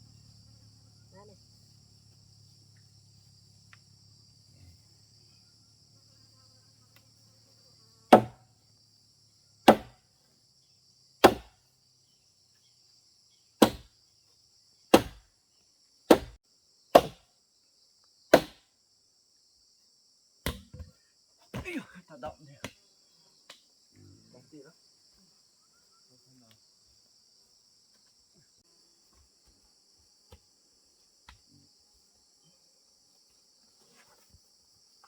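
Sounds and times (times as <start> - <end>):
insects chirring: 0.0 - 35.0
tool striking wood: 8.1 - 8.4, 9.7 - 10.0, 11.2 - 11.5, 13.6 - 13.9, 14.9 - 15.2, 16.1 - 16.4, 17.0 - 17.2, 18.3 - 18.6, 20.4 - 20.9.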